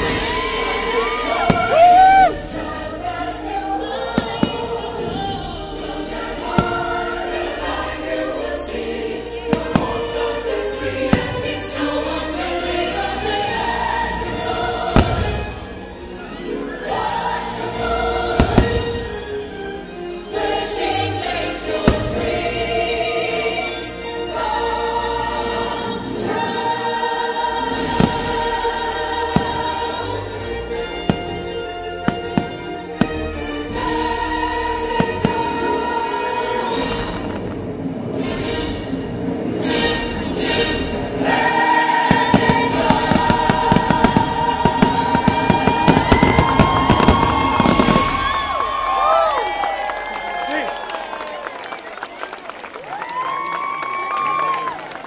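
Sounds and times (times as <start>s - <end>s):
firework bangs: 0.0s - 2.4s, 6.4s - 7.9s, 9.4s - 11.8s, 13.4s - 16.0s, 17.7s - 19.3s, 21.8s - 22.5s, 27.7s - 28.6s, 29.2s - 34.2s, 34.8s - 35.7s, 36.7s - 49.4s
choir singing over orchestra: 0.0s - 49.0s
sharp firework bangs: 14.9s - 15.8s, 42.0s - 48.6s.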